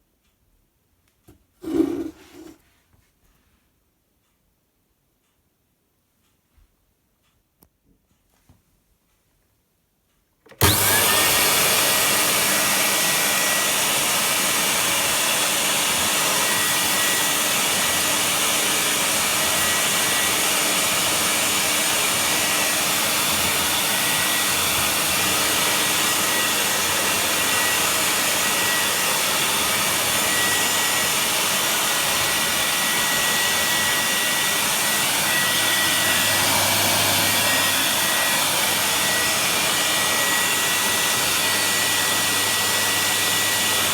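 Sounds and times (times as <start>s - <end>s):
vacuum cleaner running: 1.6s - 2.6s, 10.5s - 43.9s.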